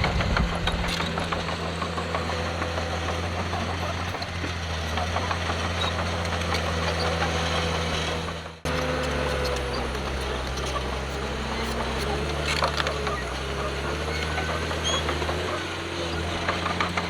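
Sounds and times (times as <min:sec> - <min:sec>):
clicks and clatter: 0:00.0 - 0:07.7, 0:08.4 - 0:17.0
heavy diesel engine running: 0:00.0 - 0:17.0.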